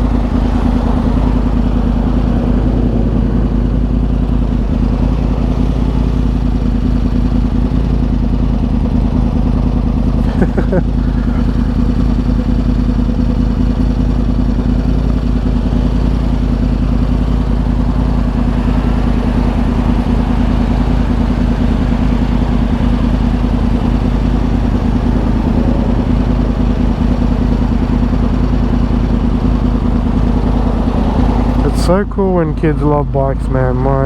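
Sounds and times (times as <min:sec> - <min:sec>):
motorcycle engine holding revs: 0:00.0 - 0:34.0.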